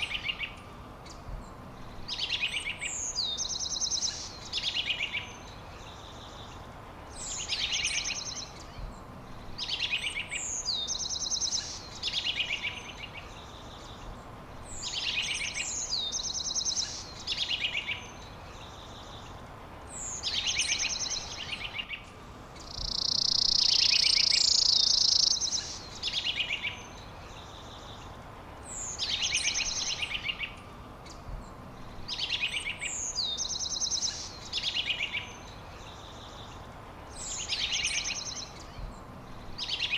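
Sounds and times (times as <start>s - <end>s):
songbird singing a trill: 0.0s - 39.9s.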